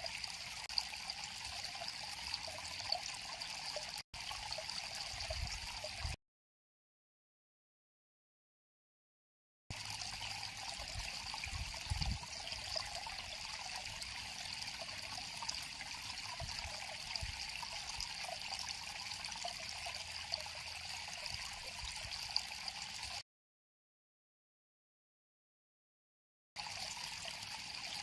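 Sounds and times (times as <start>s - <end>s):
river water flowing: 9.7s - 23.2s, 26.6s - 28.0s.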